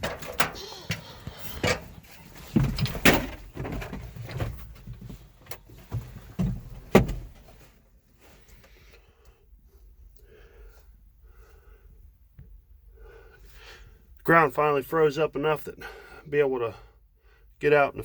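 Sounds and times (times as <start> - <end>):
clunks and knocks in tractor cab: 1.6 - 7.6.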